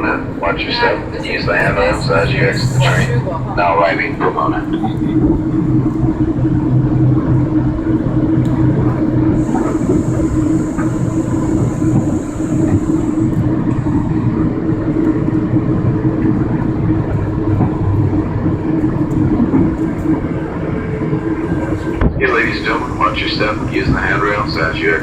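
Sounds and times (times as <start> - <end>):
train rumbling and humming: 0.0 - 25.0
high hiss: 9.4 - 13.5, 22.3 - 25.0.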